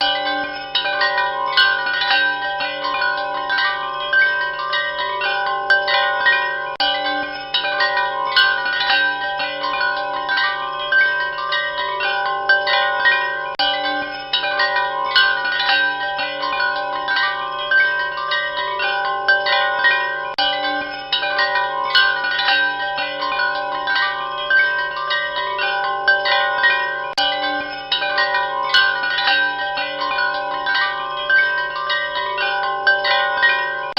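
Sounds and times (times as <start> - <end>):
chime bells ringing: 0.0 - 33.9.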